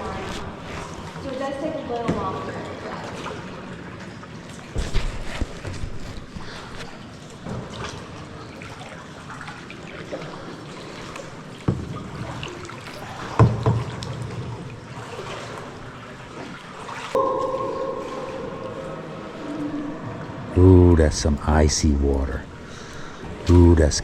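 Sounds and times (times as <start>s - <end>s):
kayak paddle strokes in water: 0.0s - 2.3s
water trickling off paddle: 0.0s - 21.0s.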